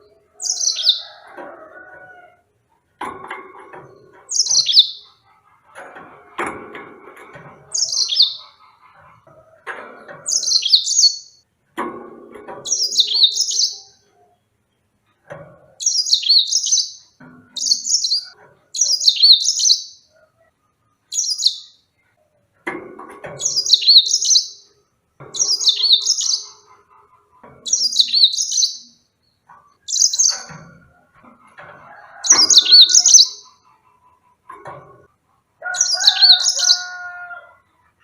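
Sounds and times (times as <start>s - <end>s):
canary singing: 0.0s - 2.1s, 3.8s - 5.3s, 7.6s - 9.0s, 10.2s - 11.4s, 12.6s - 14.2s, 15.8s - 20.2s, 21.1s - 21.9s, 23.4s - 26.8s, 27.6s - 30.7s, 32.1s - 33.8s, 35.6s - 37.6s.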